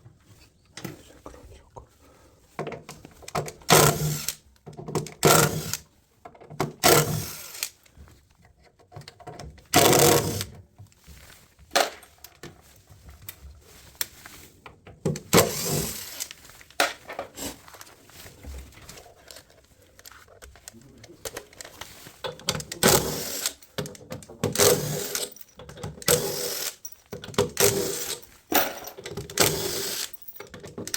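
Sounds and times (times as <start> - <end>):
cordless power drill running: 6.8 - 7.7, 9.8 - 10.5, 15.4 - 16.3, 22.8 - 23.6, 24.6 - 25.3, 26.0 - 26.8, 27.6 - 28.2, 29.4 - 30.2.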